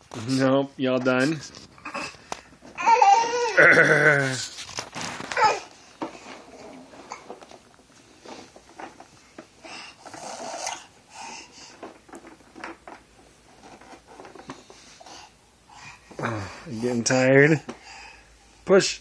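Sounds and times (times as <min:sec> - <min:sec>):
toddler breathing and snorting: 0:09.5 - 0:12.0, 0:14.4 - 0:16.9.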